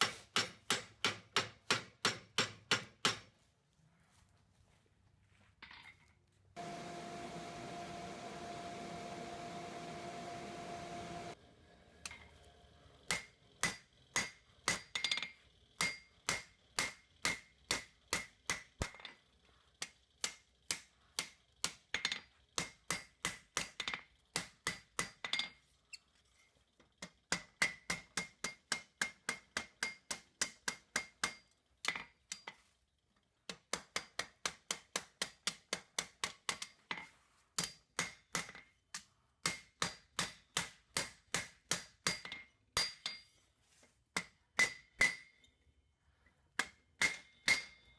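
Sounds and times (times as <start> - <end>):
hammer striking steel on anvil: 0.0 - 3.3, 13.1 - 19.1, 19.8 - 25.5, 27.0 - 32.5, 37.6 - 43.4, 44.2 - 45.5, 46.6 - 47.9.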